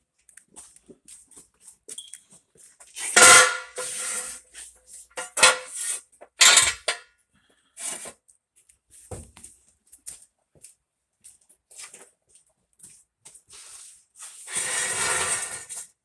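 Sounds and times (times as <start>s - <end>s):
steel jack stands clanking: 3.2s - 4.3s, 5.2s - 5.8s, 6.4s - 7.0s.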